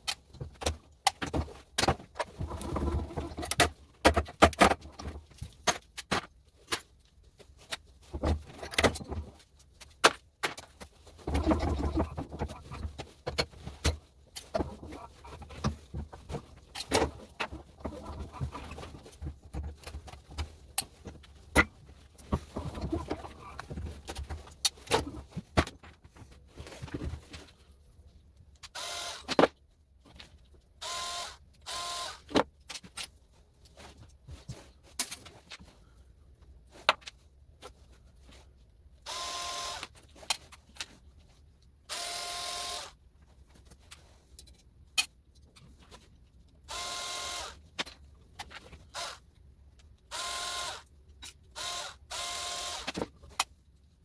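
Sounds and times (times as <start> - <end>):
plastic and metal parts clattering: 0.0 - 30.6, 32.2 - 38.5, 39.1 - 41.4, 42.8 - 51.7, 52.6 - 54.0
small motorised tool whining: 28.8 - 29.4, 30.8 - 32.3, 39.1 - 39.9, 41.9 - 43.0, 46.7 - 47.6, 48.9 - 49.2, 50.1 - 50.9, 51.6 - 53.0.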